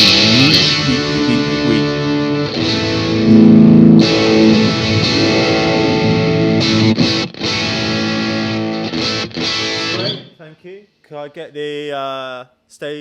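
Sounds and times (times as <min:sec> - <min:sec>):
distorted electric guitar chords: 0:00.0 - 0:10.4.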